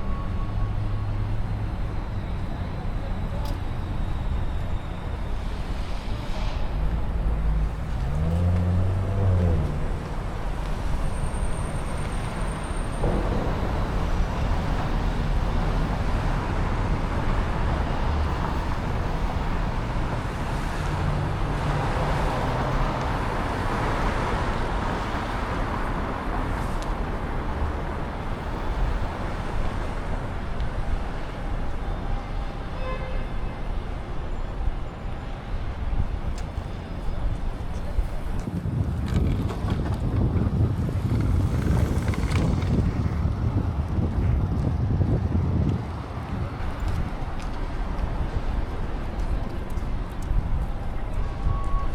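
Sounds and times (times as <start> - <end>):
cars passing: 0.0 - 51.9
loud vehicle passing: 5.6 - 12.2, 12.9 - 31.2
engine revving pulling away: 7.3 - 10.4.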